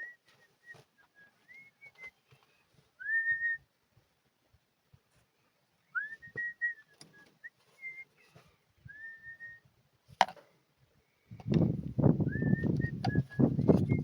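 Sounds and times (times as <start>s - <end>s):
person whistling a tune: 3.0s - 3.6s, 6.0s - 8.2s, 8.8s - 9.6s, 12.2s - 14.0s.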